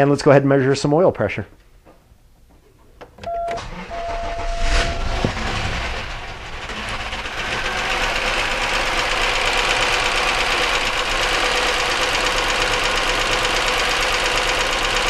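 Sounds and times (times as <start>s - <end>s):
car engine running with knock: 5.3s - 15.0s.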